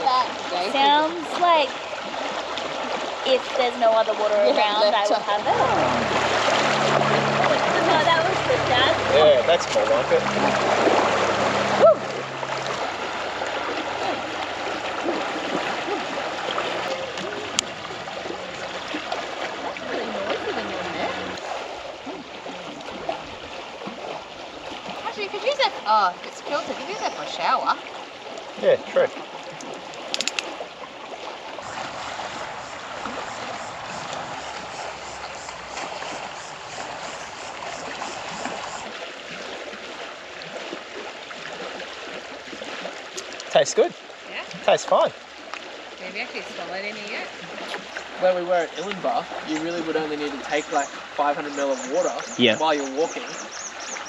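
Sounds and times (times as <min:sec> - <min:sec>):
river rushing over rocks: 0:00.0 - 0:21.9
river water rushing: 0:00.0 - 0:54.0.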